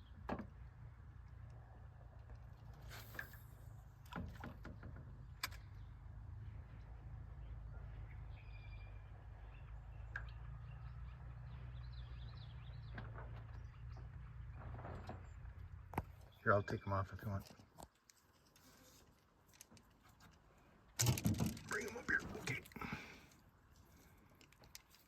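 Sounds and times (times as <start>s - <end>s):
sharp clicks and knocks: 21.0s - 22.8s.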